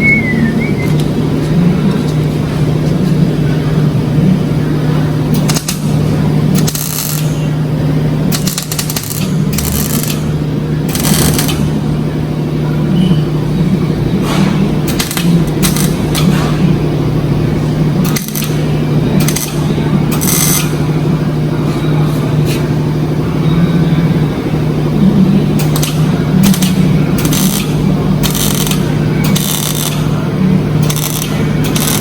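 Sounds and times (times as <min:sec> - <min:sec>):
low hum: 0:00.0 - 0:05.1
welder crackling: 0:14.9 - 0:16.3, 0:18.0 - 0:18.6, 0:19.2 - 0:20.6, 0:25.6 - 0:30.1, 0:30.8 - 0:32.0.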